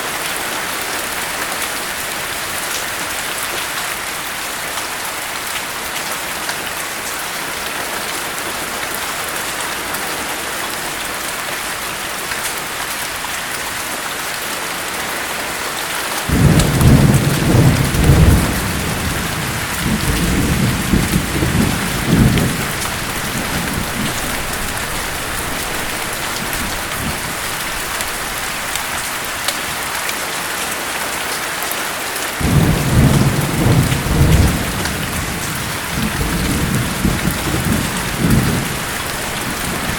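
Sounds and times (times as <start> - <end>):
steady rain: 0.0 - 39.9
thunder rolling: 16.3 - 28.4, 32.4 - 39.9.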